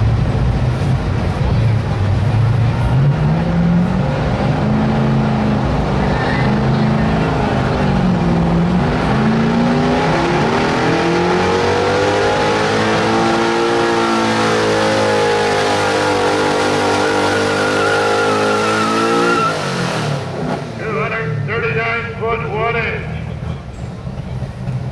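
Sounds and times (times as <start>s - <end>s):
truck engine at full throttle: 0.0s - 24.9s.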